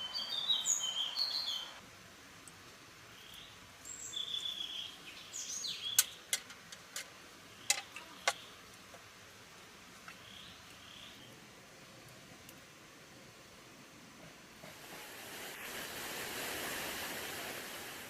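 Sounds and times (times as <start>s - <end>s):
birds chirping: 0.0s - 1.8s, 3.2s - 6.3s, 7.5s - 8.6s
faint steady hiss: 0.0s - 18.0s.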